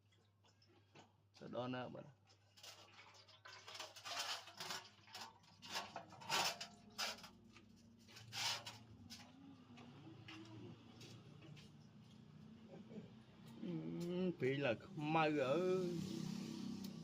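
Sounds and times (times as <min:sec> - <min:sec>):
metal tools clinking and scraping: 0:03.8 - 0:07.4.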